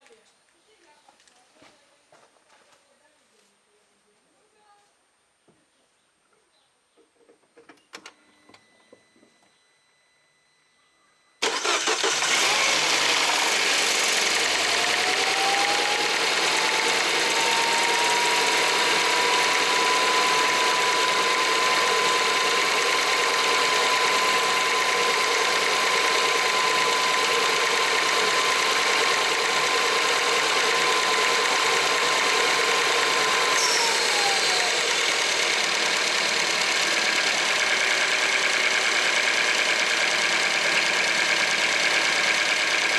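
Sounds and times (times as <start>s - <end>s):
car engine idling: 11.4s - 42.9s
engine whine: 11.4s - 42.9s.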